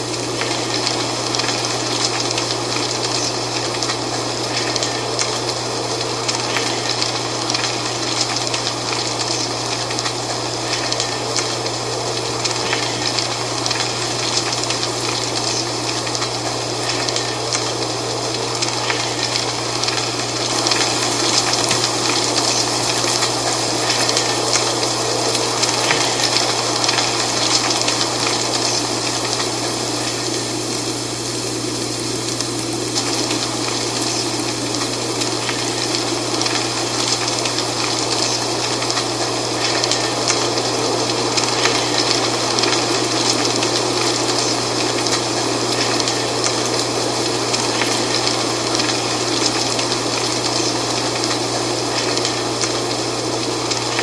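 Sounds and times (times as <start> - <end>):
wind rustling dry leaves: 0.0 - 54.0.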